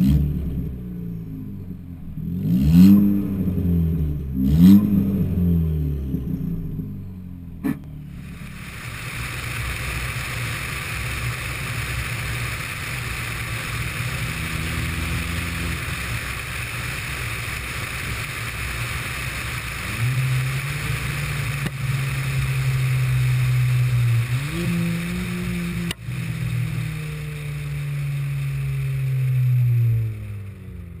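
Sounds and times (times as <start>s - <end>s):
car engine and exhaust droning: 0.0s - 31.0s
road and wind hiss: 6.7s - 31.0s.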